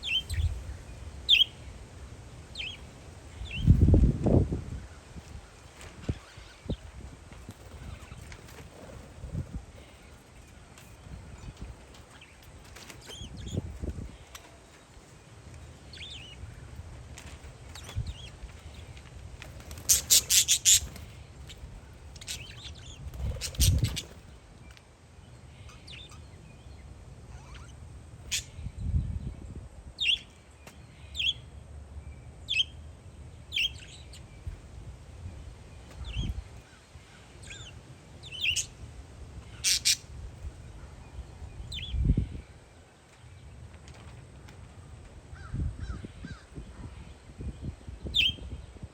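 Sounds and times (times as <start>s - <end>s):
parakeets chirping: 0.0s - 0.6s, 1.2s - 1.7s, 2.5s - 3.9s, 5.8s - 24.4s, 25.5s - 28.7s, 33.5s - 34.6s, 37.2s - 38.8s, 39.4s - 40.1s
wind rumbling on microphone: 0.0s - 14.4s, 15.9s - 24.6s, 28.2s - 30.1s, 34.2s - 36.8s, 39.2s - 42.9s, 44.7s - 48.9s.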